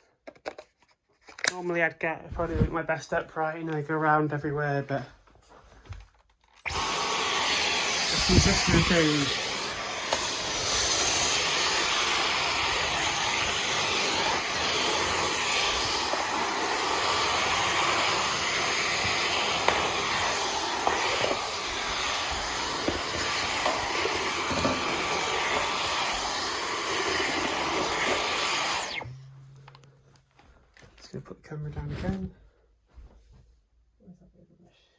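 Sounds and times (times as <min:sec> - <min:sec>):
cordless vacuum running: 0:06.6 - 0:29.9.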